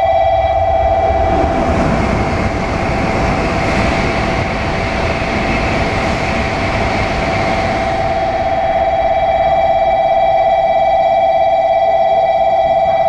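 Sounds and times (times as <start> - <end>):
constant whine: 0.0 - 13.0
train rumble: 0.0 - 13.0.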